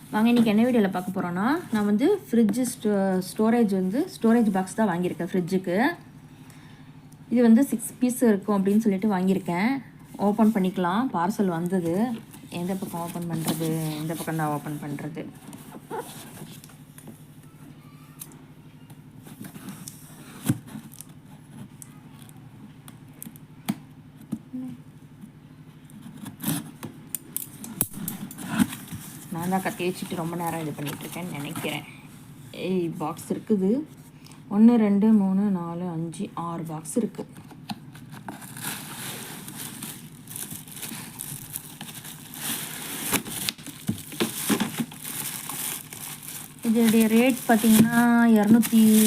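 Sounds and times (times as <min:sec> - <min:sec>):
low steady hum: 0:00.0 - 0:49.0
knife cutting packaging: 0:38.0 - 0:49.0.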